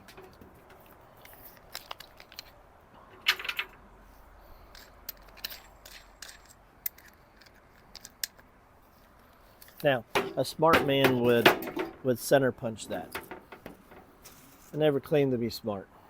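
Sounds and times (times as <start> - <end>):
metal clattering: 0.0 - 1.4, 10.0 - 14.8
tools and metal clicking: 0.0 - 2.6, 4.7 - 8.5, 9.6 - 12.1, 12.8 - 14.6.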